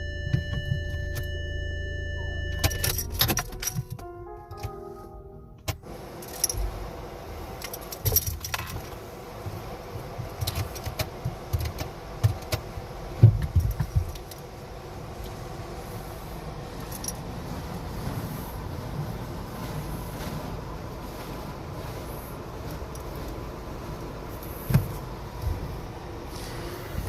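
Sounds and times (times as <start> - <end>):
car wash spray rushing: 5.8 - 27.0.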